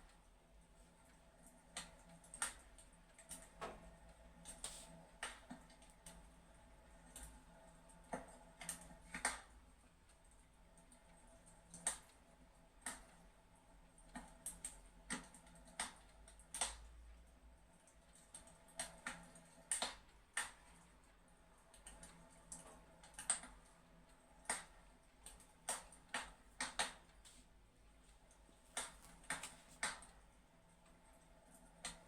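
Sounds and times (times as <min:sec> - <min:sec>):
fireplace crackling: 0:00.1 - 0:05.8, 0:23.0 - 0:32.0.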